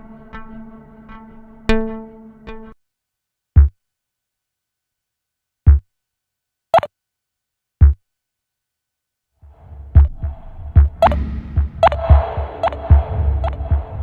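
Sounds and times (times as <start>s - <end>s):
hazy synthesizer wash: 9.5s - 14.0s
synthesizer percussive blips: 9.9s - 14.0s.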